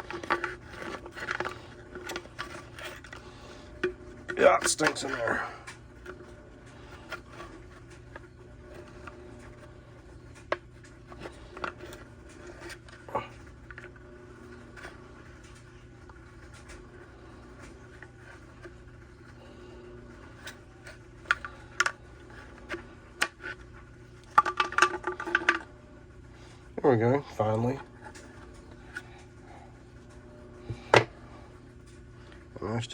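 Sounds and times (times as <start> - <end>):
hand tools clicking and scraping: 0.0 - 6.2
steady low hum: 0.0 - 32.9.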